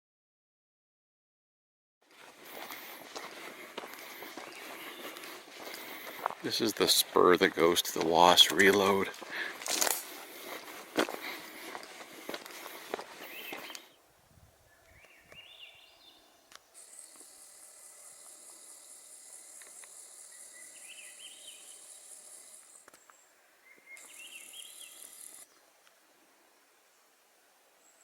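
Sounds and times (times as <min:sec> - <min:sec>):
high insect buzz: 0:02.1 - 0:14.0, 0:15.4 - 0:25.6
songbird singing rising notes: 0:04.2 - 0:05.6, 0:13.2 - 0:16.8, 0:20.2 - 0:21.9, 0:22.9 - 0:25.8.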